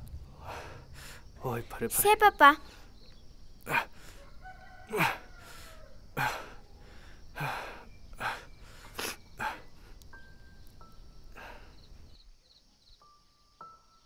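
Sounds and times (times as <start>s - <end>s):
breathy vocal huffs: 0.2s - 1.4s, 3.6s - 10.0s, 11.3s - 12.1s.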